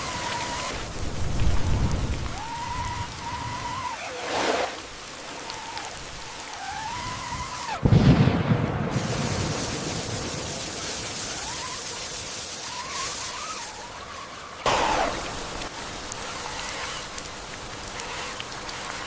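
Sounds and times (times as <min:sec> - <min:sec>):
electric motor whining: 0:00.0 - 0:07.8, 0:12.6 - 0:19.0
hiss of churning water: 0:00.0 - 0:19.0.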